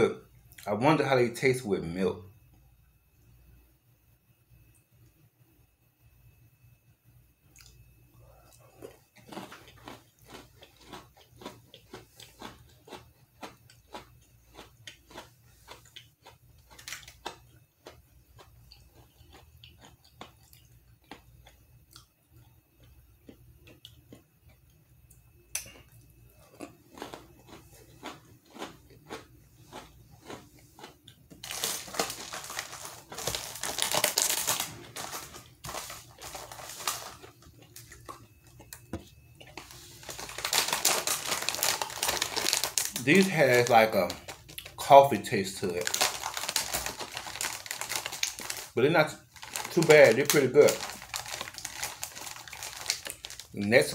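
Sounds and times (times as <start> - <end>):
crunchy cookie chewing: 7.5 - 53.9
plastic snack bag crinkling: 8.8 - 21.2, 26.6 - 53.9.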